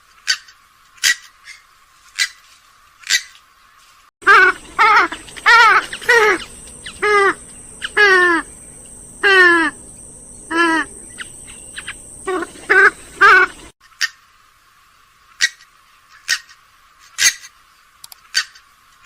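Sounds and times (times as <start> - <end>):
swamphen nasal calls: 4.2 - 14.2.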